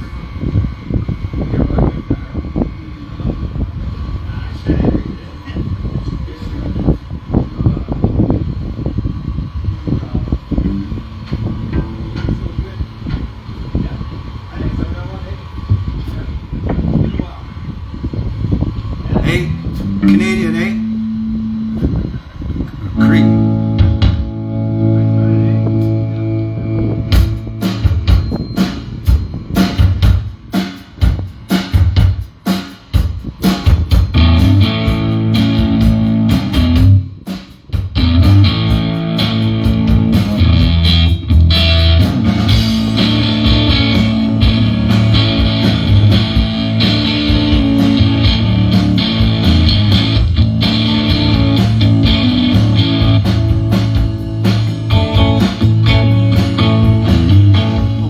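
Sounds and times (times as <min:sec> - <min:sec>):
bass guitar: 0:10.5 - 0:13.8, 0:19.1 - 0:30.3, 0:33.6 - 0:37.2, 0:37.8 - 0:58.0
electric guitar: 0:10.5 - 0:13.8, 0:19.2 - 0:30.6, 0:33.7 - 0:37.2, 0:37.8 - 0:58.0
drum kit: 0:19.3 - 0:20.9, 0:23.0 - 0:25.0, 0:27.1 - 0:58.0.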